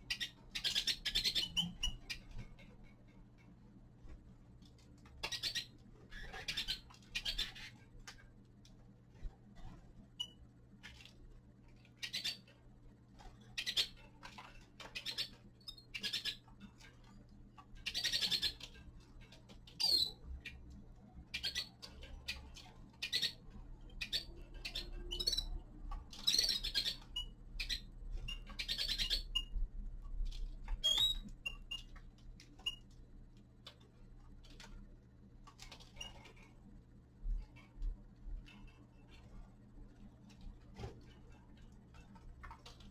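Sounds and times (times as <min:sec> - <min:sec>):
harsh buzzy bird calls: 0:00.0 - 0:02.3, 0:05.2 - 0:07.9, 0:11.9 - 0:12.6, 0:13.4 - 0:14.2, 0:14.9 - 0:16.6, 0:17.8 - 0:18.8, 0:19.7 - 0:20.6, 0:21.3 - 0:29.6
finches chirping: 0:00.0 - 0:02.6, 0:05.2 - 0:07.8, 0:11.9 - 0:12.6, 0:13.4 - 0:14.2, 0:14.8 - 0:16.7, 0:17.8 - 0:18.8, 0:19.7 - 0:20.6, 0:21.3 - 0:29.6, 0:30.7 - 0:31.9
steady low hum: 0:00.0 - 0:42.9
small clicks and taps: 0:30.0 - 0:36.6.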